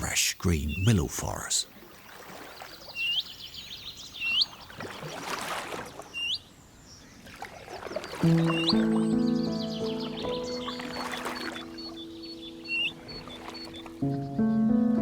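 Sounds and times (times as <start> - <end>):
water sounds: 0.0 - 6.3, 7.0 - 14.1
canoe paddle strokes: 1.1 - 3.0, 4.4 - 6.2, 7.2 - 9.0, 10.0 - 12.0, 12.7 - 14.0
music: 8.2 - 15.0.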